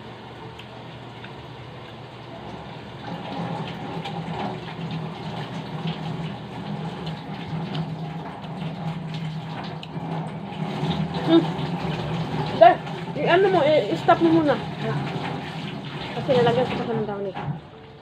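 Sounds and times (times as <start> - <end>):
washing machine filling with water: 0.0 - 18.0.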